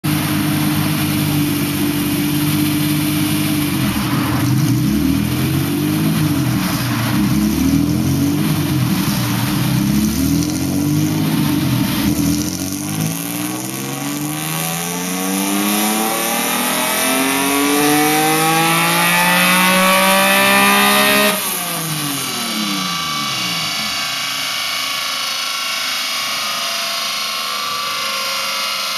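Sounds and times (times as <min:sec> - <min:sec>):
high-pitched car engine revving: 0:00.1 - 0:28.9.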